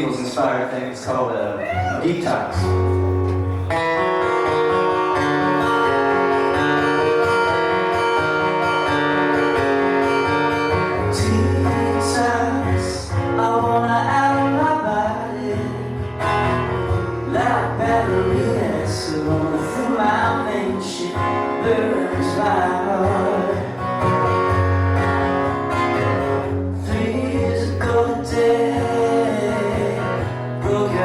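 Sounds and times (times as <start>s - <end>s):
wavering lead guitar line: 1.4s - 31.0s
live band playing: 1.5s - 11.1s, 23.6s - 26.7s.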